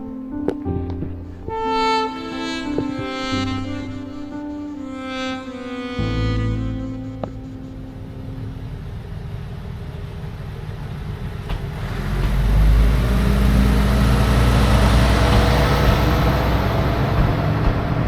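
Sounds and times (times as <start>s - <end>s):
diesel railcar engine rumbling: 6.6s - 18.0s.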